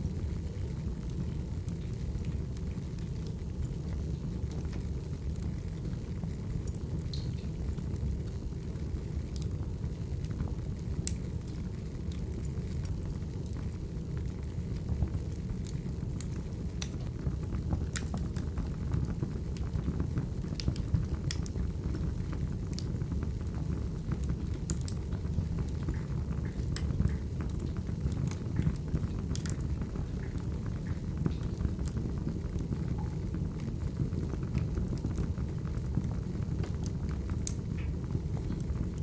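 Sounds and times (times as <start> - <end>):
firewood crackling and popping: 0.0 - 39.0.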